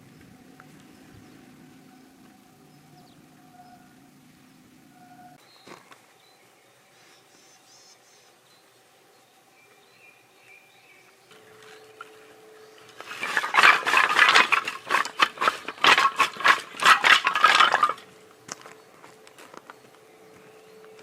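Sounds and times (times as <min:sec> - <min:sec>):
dishes clattering and scraping: 0:12.9 - 0:18.2.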